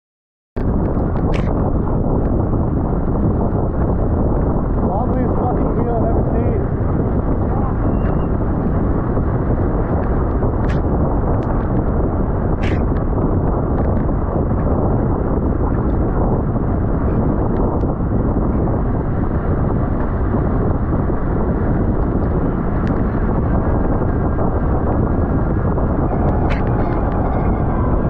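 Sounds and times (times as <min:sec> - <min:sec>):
wind noise on microphone: 0:00.6 - 0:28.0.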